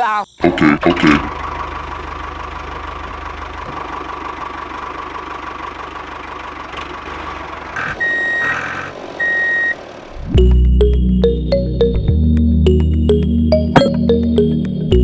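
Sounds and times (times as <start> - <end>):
electronic beep: 8.0 - 8.5, 13.5 - 14.2.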